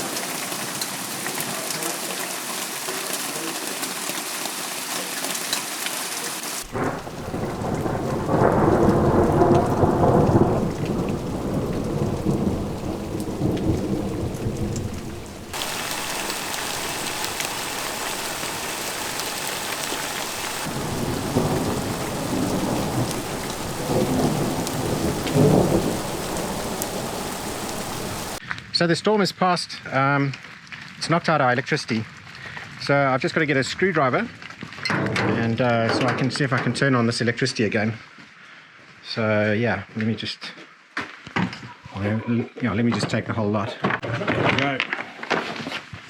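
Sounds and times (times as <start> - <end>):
heavy rain: 0.0 - 28.4
thunder rumbling: 6.7 - 28.4.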